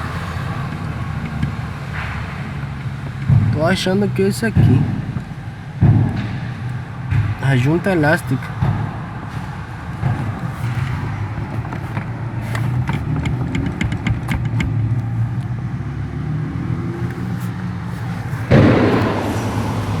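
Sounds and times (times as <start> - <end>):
pickup truck idling: 0.0 - 20.0
steering column clicks: 10.4 - 15.6
loud rushing noise: 14.8 - 20.0.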